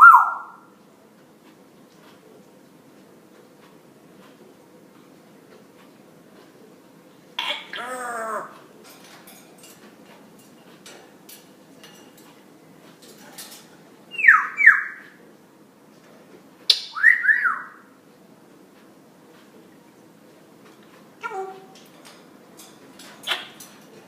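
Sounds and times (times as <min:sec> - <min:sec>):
parrot whistling: 0:00.0 - 0:00.6, 0:14.1 - 0:15.0, 0:16.7 - 0:17.9.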